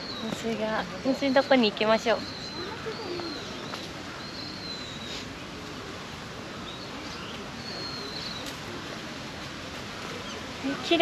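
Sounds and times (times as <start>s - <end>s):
steady background hiss: 0.0s - 11.0s
high whistled bird calls: 1.0s - 5.3s, 6.6s - 8.5s.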